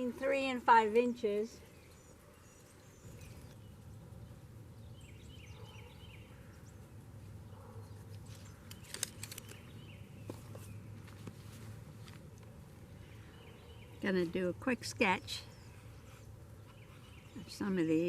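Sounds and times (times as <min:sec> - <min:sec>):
sharp rustling clicks: 0:08.1 - 0:11.4.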